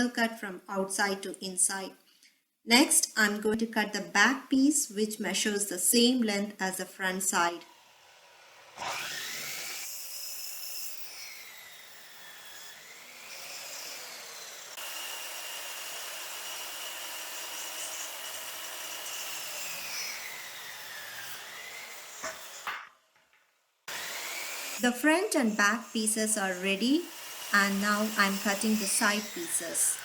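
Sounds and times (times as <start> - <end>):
miter saw cutting wood: 7.2 - 22.7, 23.9 - 30.0.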